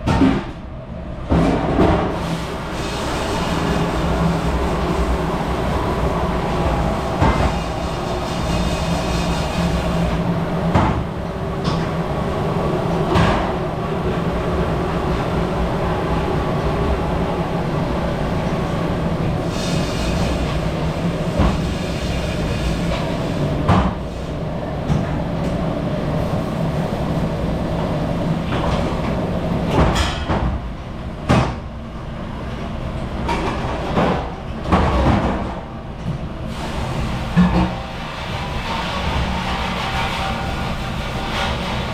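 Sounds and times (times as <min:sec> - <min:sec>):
dishwashing machine running: 0:01.8 - 0:11.1, 0:36.5 - 0:41.9.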